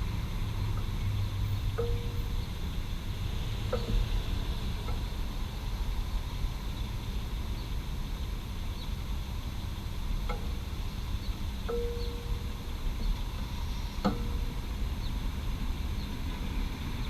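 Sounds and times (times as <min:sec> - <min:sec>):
urban traffic rumble: 0:00.0 - 0:17.0
hot engine metallic ticks: 0:01.7 - 0:02.7, 0:03.7 - 0:05.4, 0:11.6 - 0:12.5, 0:14.0 - 0:14.6.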